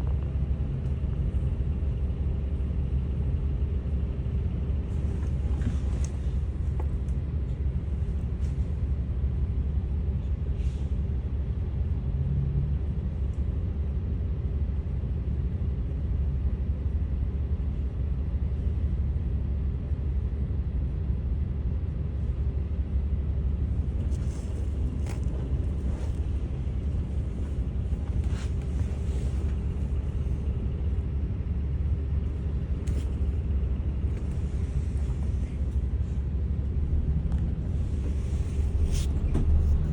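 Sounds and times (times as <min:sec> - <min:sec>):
bus diesel engine drone: 0:00.0 - 0:39.9
steady hum: 0:20.4 - 0:39.9.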